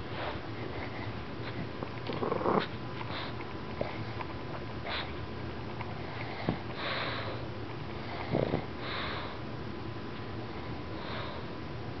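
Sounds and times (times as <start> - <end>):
dog sniffing breaths: 0.0 - 5.2, 5.8 - 9.4, 10.6 - 11.6
dog snort: 0.2 - 4.2, 4.8 - 5.2, 5.8 - 9.4.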